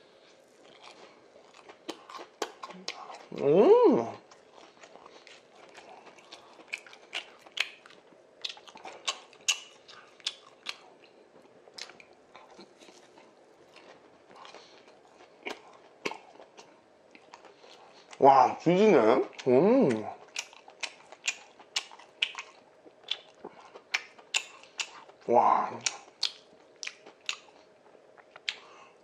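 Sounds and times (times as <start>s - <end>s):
crunchy chewing: 0.1s - 3.4s, 4.0s - 18.2s, 19.2s - 29.0s
person humming: 2.7s - 4.2s, 18.7s - 20.1s.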